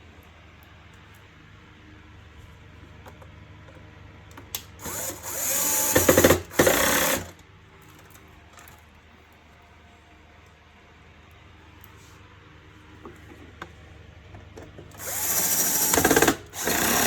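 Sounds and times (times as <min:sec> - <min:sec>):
power screwdriver driving screws: 0:04.8 - 0:07.3, 0:15.0 - 0:17.0.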